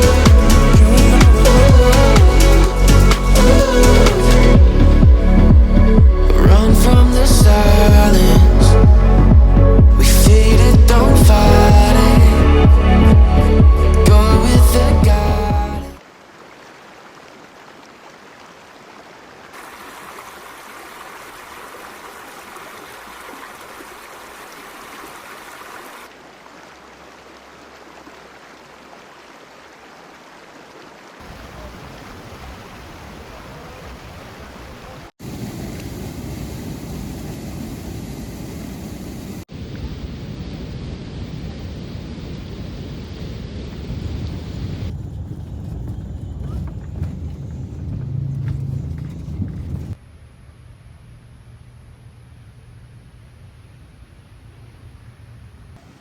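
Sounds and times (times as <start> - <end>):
low rumble: 0.0 - 16.0, 43.8 - 55.9
rushing outdoor ambience: 0.0 - 16.0, 31.2 - 56.0.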